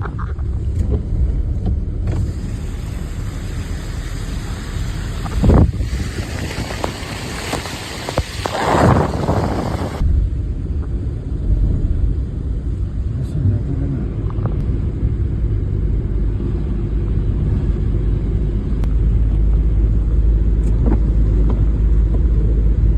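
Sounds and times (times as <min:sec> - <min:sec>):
wind buffeting microphone: 0:02.2 - 0:12.9.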